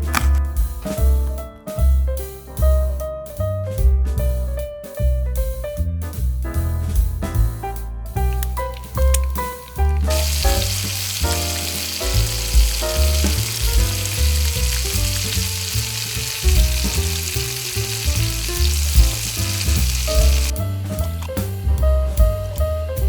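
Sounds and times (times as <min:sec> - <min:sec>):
background music: 0:07.1 - 0:23.0
food sizzling in a pan: 0:08.8 - 0:20.5.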